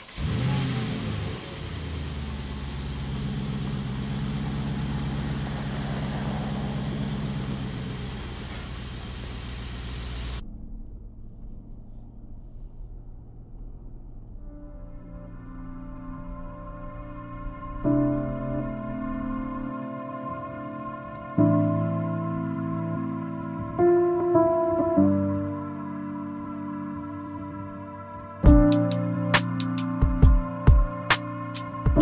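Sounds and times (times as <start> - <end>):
car engine starting and idling: 0.0 - 20.0
engine and road rumble: 0.0 - 24.2.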